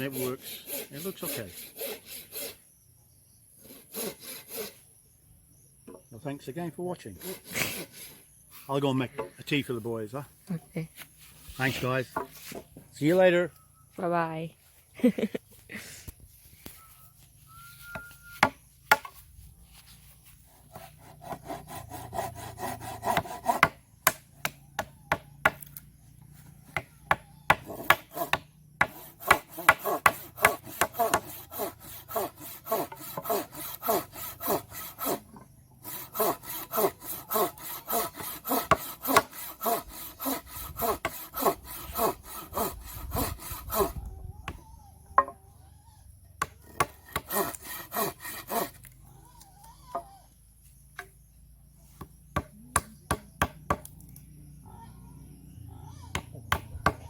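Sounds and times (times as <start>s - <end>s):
handsaw cutting wood: 0.0s - 2.6s, 3.6s - 4.9s, 7.2s - 8.2s, 19.7s - 25.6s, 27.1s - 44.0s, 46.6s - 48.9s.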